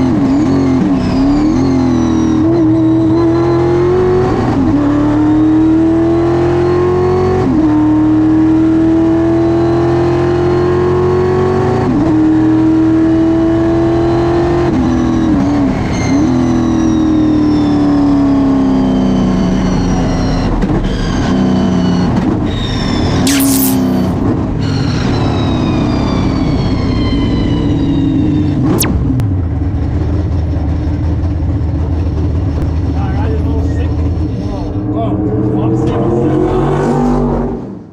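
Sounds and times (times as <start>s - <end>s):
race car engine at full throttle: 0.0s - 37.9s
short harsh burst of noise: 23.3s - 24.2s.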